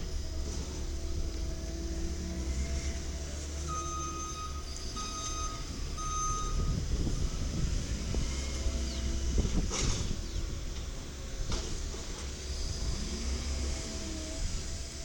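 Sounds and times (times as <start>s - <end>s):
diesel engine running: 0.0s - 15.0s
truck backup alarm beeping: 3.6s - 7.7s.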